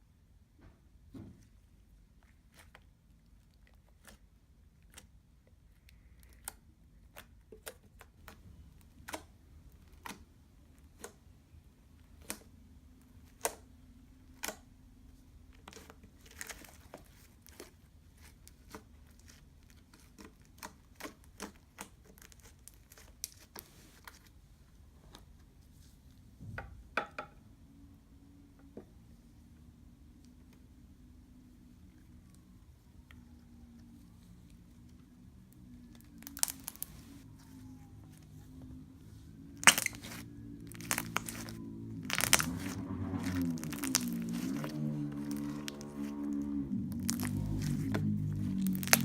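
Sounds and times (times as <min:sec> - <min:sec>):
slime clicking and popping: 0:36.2 - 0:37.0, 0:39.6 - 0:45.9, 0:47.0 - 0:49.0.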